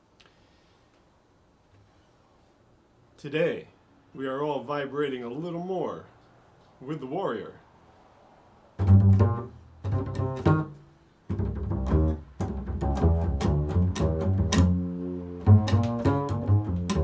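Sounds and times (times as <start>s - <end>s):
double bass plucked: 8.8s - 17.0s.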